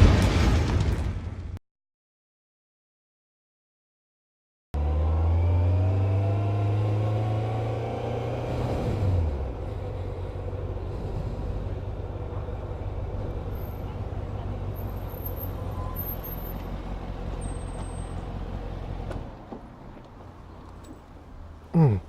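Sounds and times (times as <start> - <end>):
vehicle engine rumbling: 4.8 - 22.0.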